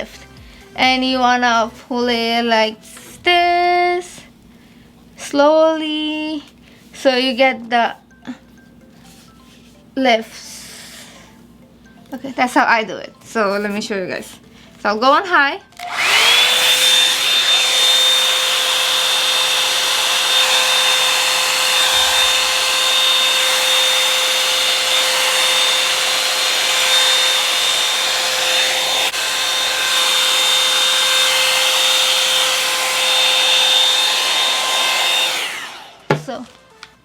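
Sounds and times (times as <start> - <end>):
hair dryer motor whine: 15.8 - 36.9.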